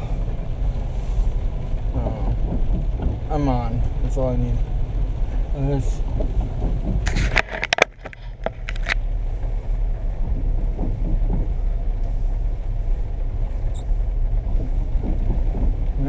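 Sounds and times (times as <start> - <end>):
low vehicle rumble: 0.0 - 16.0
clicks and knocks: 6.1 - 9.0.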